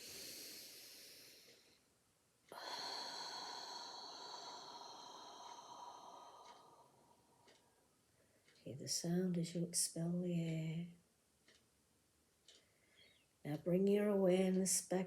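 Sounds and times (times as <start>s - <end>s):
long exhale: 0.0s - 1.7s, 2.5s - 7.0s
soft inhale through nose: 0.0s - 1.8s.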